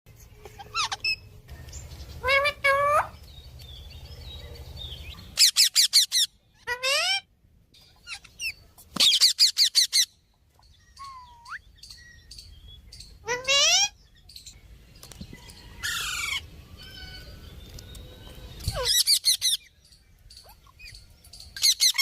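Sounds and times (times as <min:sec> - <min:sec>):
parrot chirps and calls: 0:00.2 - 0:22.0
parrot squawks: 0:00.6 - 0:01.3, 0:05.4 - 0:07.3, 0:13.2 - 0:14.0.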